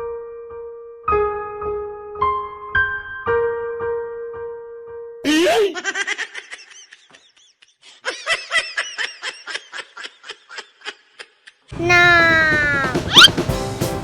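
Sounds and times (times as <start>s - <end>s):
high-pitched snickering laugh: 5.3s - 11.7s.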